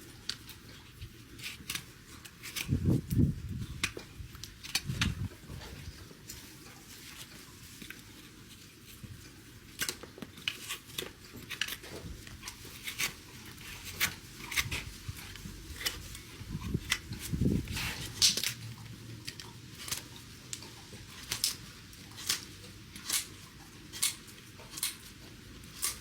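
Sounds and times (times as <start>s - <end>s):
snips and scrapes on hoof: 0.2s - 26.0s.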